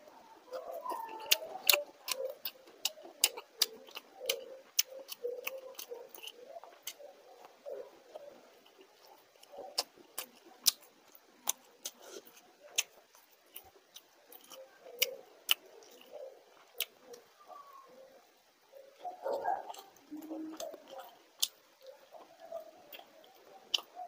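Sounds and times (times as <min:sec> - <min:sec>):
biting into fried fish: 0:00.5 - 0:17.2
person chewing with lip clicks: 0:00.5 - 0:17.2, 0:19.0 - 0:24.0.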